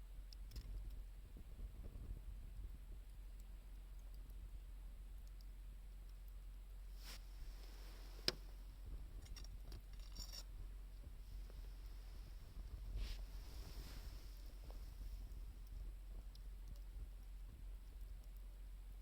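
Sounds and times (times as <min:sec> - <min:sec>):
faint low rumble: 0:00.0 - 0:19.0
wood fire crackling: 0:05.2 - 0:10.0, 0:10.8 - 0:19.0.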